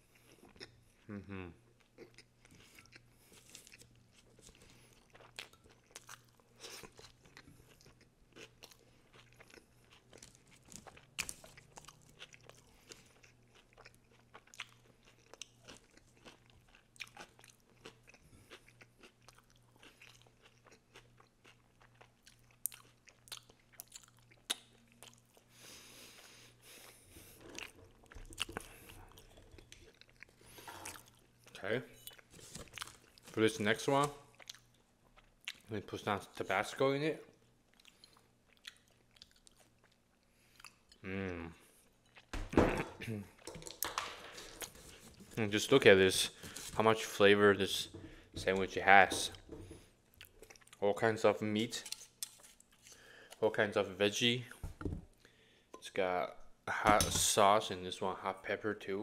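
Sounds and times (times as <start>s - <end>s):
chewing a sandwich: 0.0s - 33.4s, 34.2s - 35.7s, 37.3s - 42.3s, 49.8s - 50.8s, 52.0s - 53.4s.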